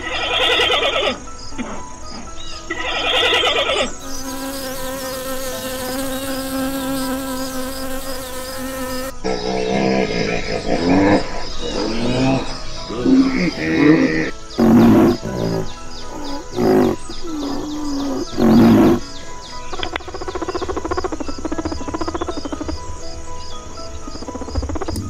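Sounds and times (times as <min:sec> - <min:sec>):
hippopotamus calling: 0:00.0 - 0:01.9, 0:02.7 - 0:04.0, 0:08.8 - 0:22.8
soft background music: 0:00.0 - 0:25.0
bee buzzing: 0:03.0 - 0:22.8.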